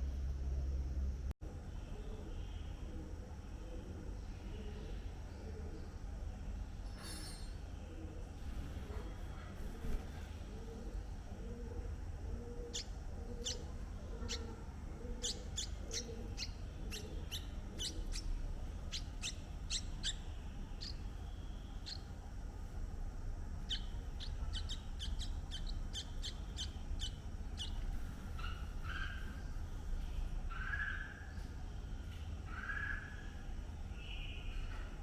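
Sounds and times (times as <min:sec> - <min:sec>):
steady low rumble: 0:00.0 - 0:06.8, 0:07.8 - 0:32.5
birds chirping: 0:09.8 - 0:35.0
soft low bird call: 0:10.5 - 0:22.2, 0:23.6 - 0:31.4.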